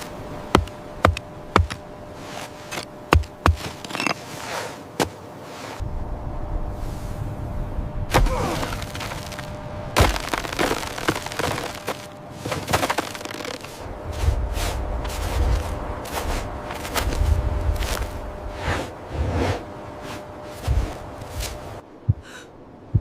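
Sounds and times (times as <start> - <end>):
low rumble: 5.8 - 12.1, 13.8 - 23.0
sharp cracks and knocks: 8.1 - 13.8.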